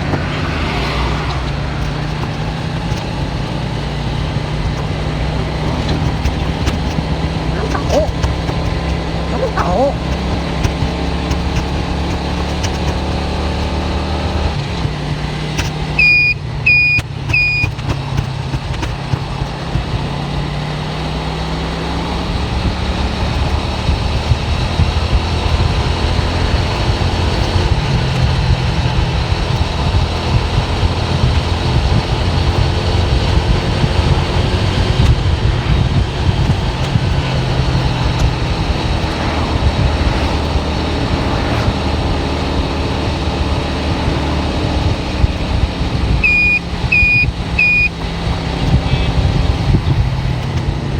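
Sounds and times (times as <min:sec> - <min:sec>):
car engine and road noise: 0:00.0 - 0:50.9
short high electronic beeps: 0:16.0 - 0:17.7, 0:46.2 - 0:47.9.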